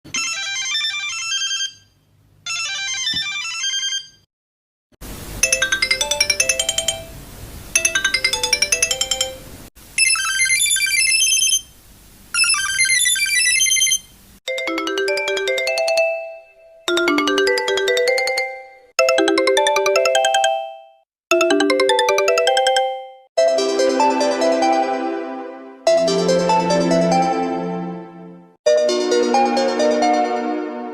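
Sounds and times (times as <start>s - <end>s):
electronic ringtone melodies: 5.4s - 7.1s, 7.8s - 9.4s, 10.0s - 11.6s, 12.4s - 25.0s, 25.9s - 27.5s.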